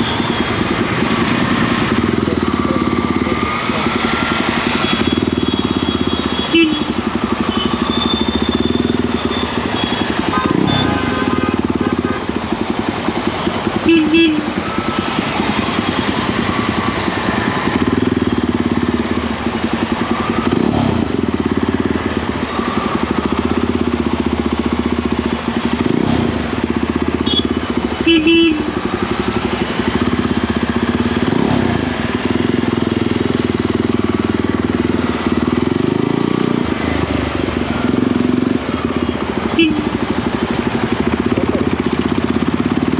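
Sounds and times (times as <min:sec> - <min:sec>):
motorcycle engine revving: 0:00.0 - 0:42.9
vehicle horn beeps: 0:04.8 - 0:12.3, 0:13.8 - 0:16.2, 0:27.2 - 0:28.9, 0:39.5 - 0:40.1.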